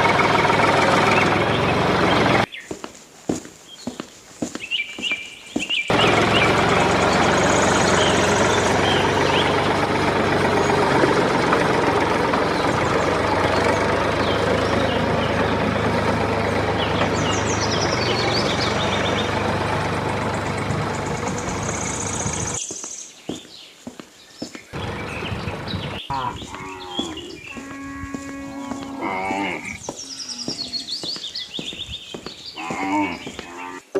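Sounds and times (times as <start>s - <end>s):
engine running steadily: 0.0s - 2.5s, 5.9s - 22.8s, 24.7s - 31.7s.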